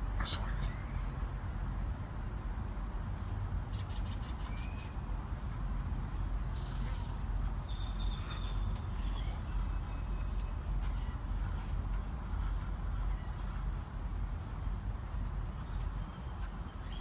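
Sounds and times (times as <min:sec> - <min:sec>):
birds singing: 0:00.2 - 0:01.2, 0:03.7 - 0:05.1, 0:06.0 - 0:11.3, 0:15.1 - 0:17.0.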